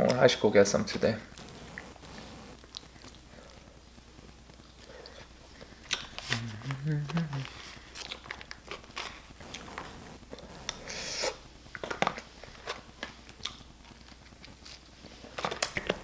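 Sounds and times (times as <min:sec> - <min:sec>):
person chewing: 0:01.4 - 0:16.0.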